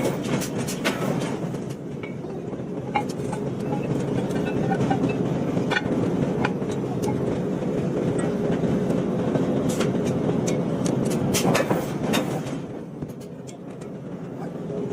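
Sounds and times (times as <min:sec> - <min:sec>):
machinery rumble: 0:00.0 - 0:14.9.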